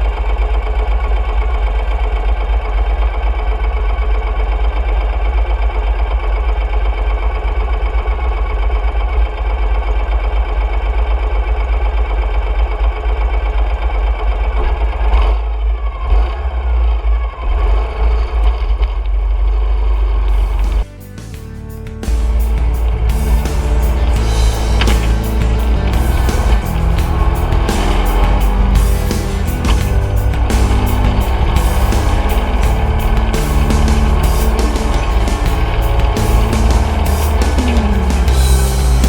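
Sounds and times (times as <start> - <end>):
motorcycle engine rumbling: 19.9 - 39.0.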